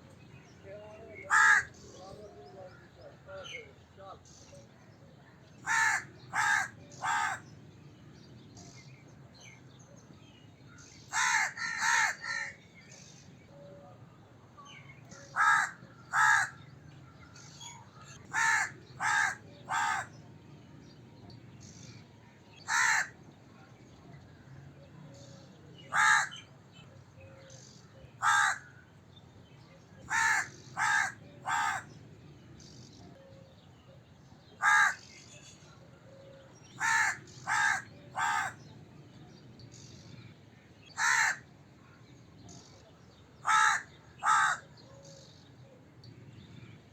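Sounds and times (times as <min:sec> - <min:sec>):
faint background noise: 0:00.0 - 0:46.9
crow cawing: 0:01.2 - 0:01.8, 0:05.6 - 0:07.5, 0:11.1 - 0:12.6, 0:15.3 - 0:16.7, 0:18.0 - 0:20.2, 0:22.7 - 0:23.2, 0:25.9 - 0:26.5, 0:28.2 - 0:28.8, 0:30.1 - 0:31.9, 0:34.6 - 0:35.1, 0:36.8 - 0:38.6, 0:41.0 - 0:41.5, 0:43.4 - 0:44.7.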